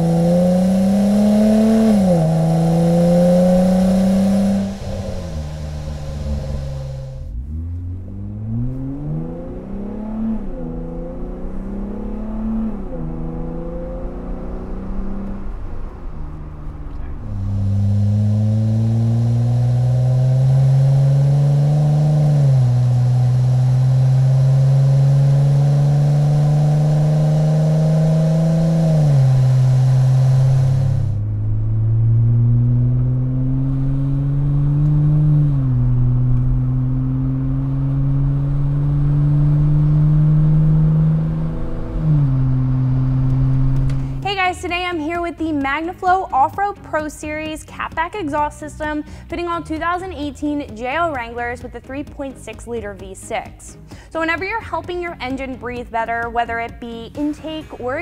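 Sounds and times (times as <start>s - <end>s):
car exhaust accelerating through gears: 0.0s - 45.2s.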